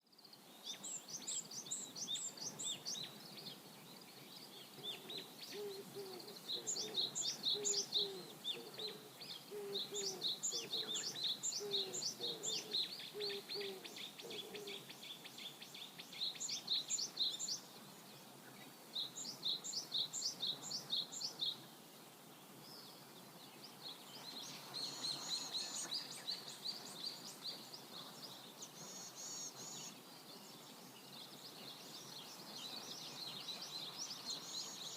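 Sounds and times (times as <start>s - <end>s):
faint river flow: 0.0s - 34.9s
lower repeated bird call: 4.9s - 14.9s
songbirds singing high notes: 5.0s - 15.2s.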